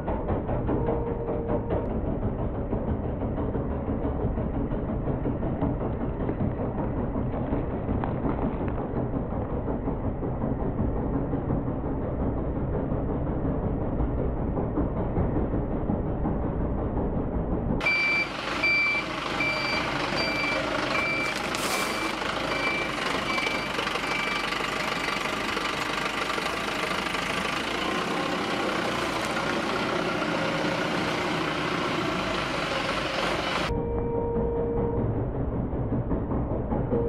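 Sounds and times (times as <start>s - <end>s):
low rumble: 0.0s - 23.4s, 25.2s - 37.0s
truck engine running: 0.0s - 37.0s
truck reversing alarm beeping: 0.8s - 1.9s, 17.8s - 25.4s, 32.9s - 35.3s.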